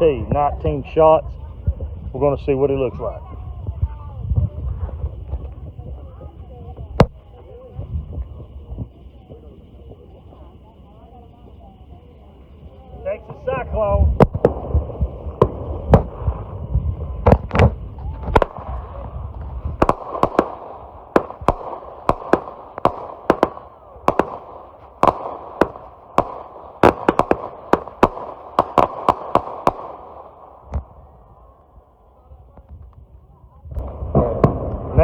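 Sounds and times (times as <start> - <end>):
firework reports and bursts: 0.0 - 35.0
low rumble: 13.4 - 35.0.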